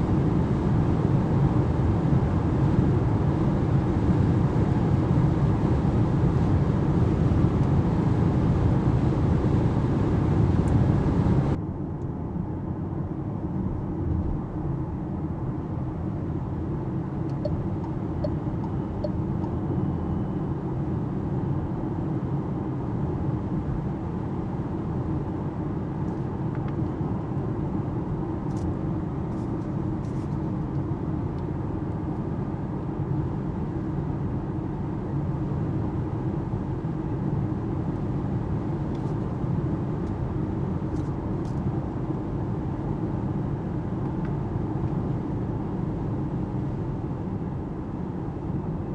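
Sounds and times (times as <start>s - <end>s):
tyre and wind noise in car: 0.1s - 11.6s, 13.6s - 15.3s.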